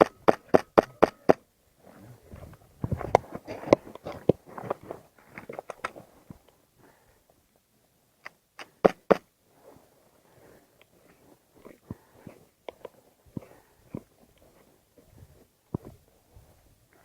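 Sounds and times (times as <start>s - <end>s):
knocking and scuffing: 2.3s - 5.0s.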